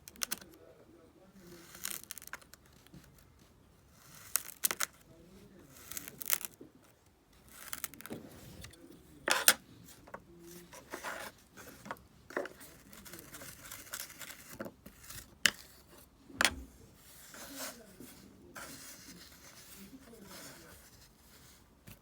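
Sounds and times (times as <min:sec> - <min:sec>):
soft sand scraping: 0:16.8 - 0:21.7.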